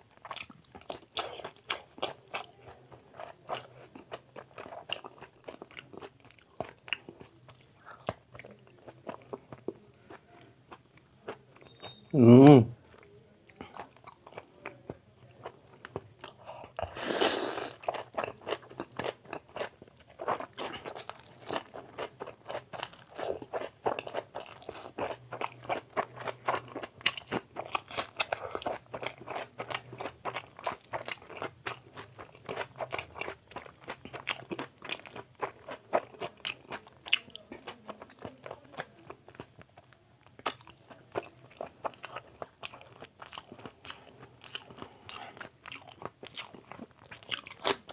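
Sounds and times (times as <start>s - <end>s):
close-up chewing and smacking: 0.0s - 12.0s, 12.8s - 17.0s, 17.7s - 47.9s
loud slurp of noodles: 16.9s - 17.8s.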